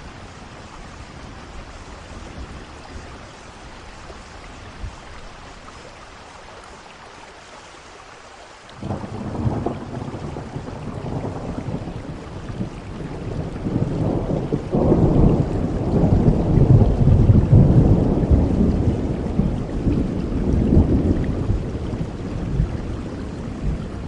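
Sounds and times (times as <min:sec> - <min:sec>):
steady rain: 0:00.0 - 0:24.0
thunder rumbling: 0:08.8 - 0:24.0.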